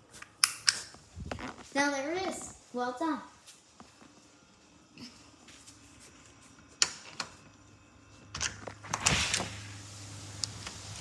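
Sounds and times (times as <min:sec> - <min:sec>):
steady low hum: 0:00.9 - 0:11.0
door sliding open with rattle: 0:08.4 - 0:11.0.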